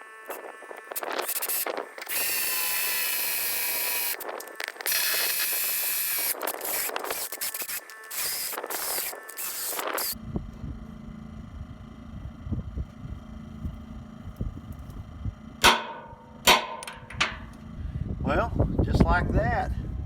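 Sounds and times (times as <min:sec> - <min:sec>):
electric drill boring into metal: 0:00.0 - 0:10.2.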